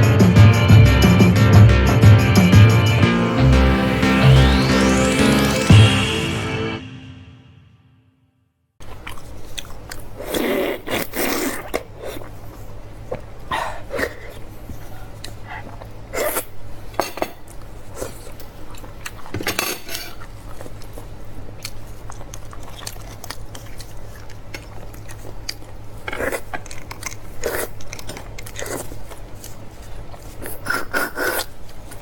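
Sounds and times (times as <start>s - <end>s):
chewing and biting: 8.8s - 12.5s, 20.4s - 32.0s
bones and utensils clinking on dishes: 19.3s - 20.3s.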